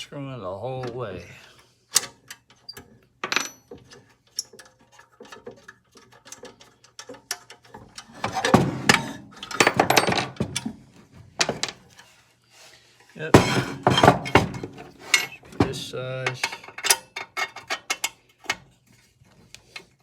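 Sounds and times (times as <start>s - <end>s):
metal parts clinking: 2.0s - 10.7s, 13.3s - 18.5s
metal clattering: 3.2s - 10.8s, 13.2s - 18.1s.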